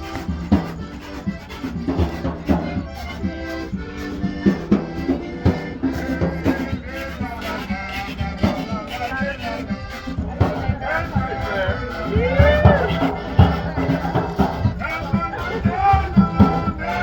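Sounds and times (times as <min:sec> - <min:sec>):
accordion playing: 0:00.0 - 0:17.0
percussive beat: 0:00.0 - 0:17.0.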